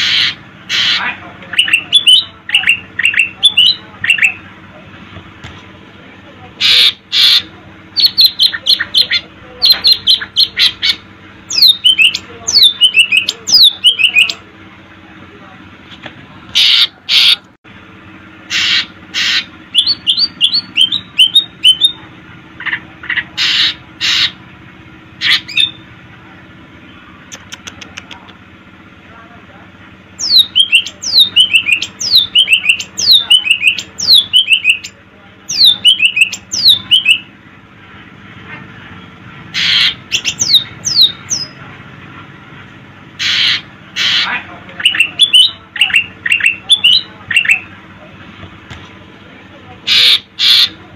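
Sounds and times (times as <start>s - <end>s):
bird squawks and whistles: 0.0s - 4.4s, 6.6s - 14.4s, 16.6s - 17.4s, 18.5s - 22.0s, 23.1s - 24.4s, 25.2s - 25.8s, 30.2s - 37.3s, 39.6s - 41.6s, 43.2s - 47.7s, 49.9s - 50.8s.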